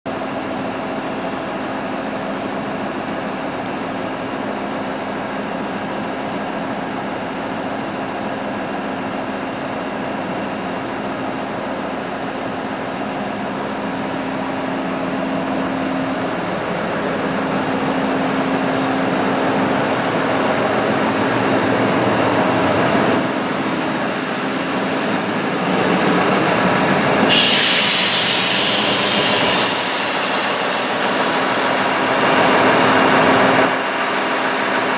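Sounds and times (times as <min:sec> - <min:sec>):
diesel train engine drone: 0:00.1 - 0:34.9
loud hiss: 0:27.3 - 0:33.2.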